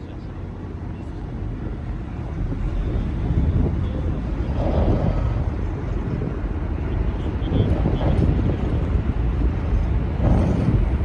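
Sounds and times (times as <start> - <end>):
boat low rumble: 0.0 - 11.0
wind buffeting microphone: 0.0 - 11.0.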